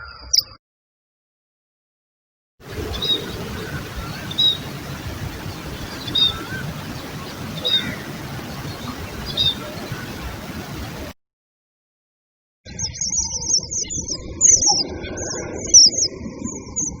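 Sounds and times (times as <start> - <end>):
background hiss: 2.6 - 11.1
softer lower bird calls: 2.7 - 10.9
bird short high call: 2.9 - 4.8, 5.9 - 6.8, 7.5 - 8.2.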